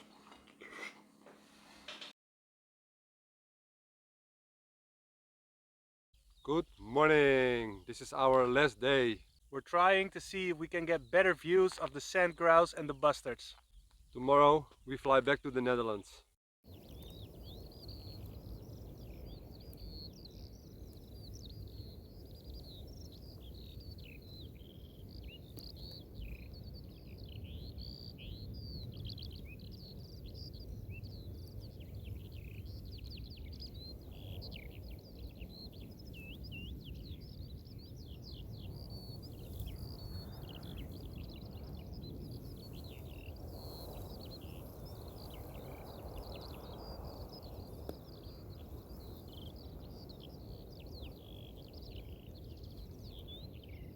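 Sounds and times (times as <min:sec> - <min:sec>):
songbirds chorus chirping: 0:00.0 - 0:02.1, 0:06.2 - 0:53.9.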